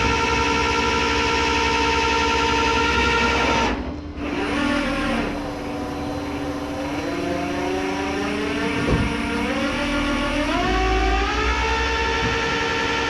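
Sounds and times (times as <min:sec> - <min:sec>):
truck engine under load: 0:04.2 - 0:13.0.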